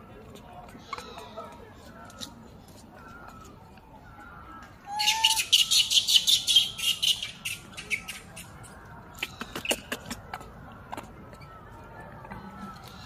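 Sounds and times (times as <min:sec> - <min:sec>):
bird chattering high chirps: 0:04.9 - 0:08.5.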